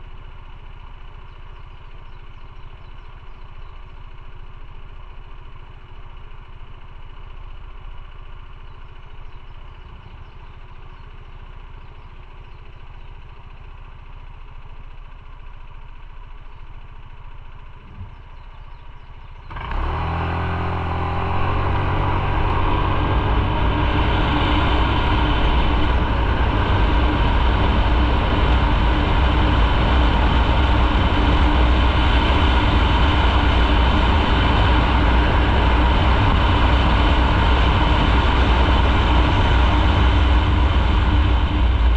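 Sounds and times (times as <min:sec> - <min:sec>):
motorcycle engine: 0:00.0 - 0:41.9
rushing wind noise: 0:20.8 - 0:41.9.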